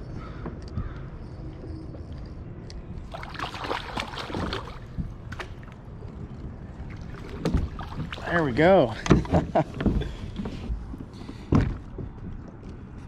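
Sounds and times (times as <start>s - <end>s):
water splashing: 3.1s - 9.1s.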